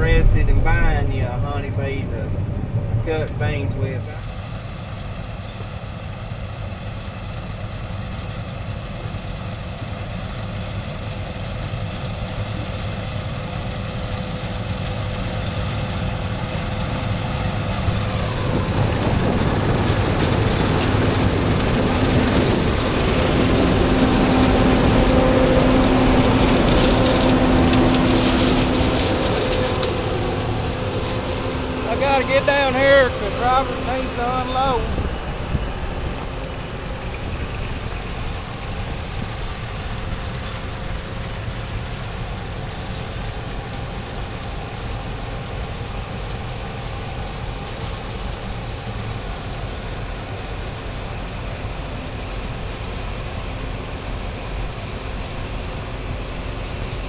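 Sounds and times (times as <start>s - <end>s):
steady whine: 0.0s - 6.7s, 15.7s - 45.6s
combine harvester engine drone: 0.0s - 57.0s.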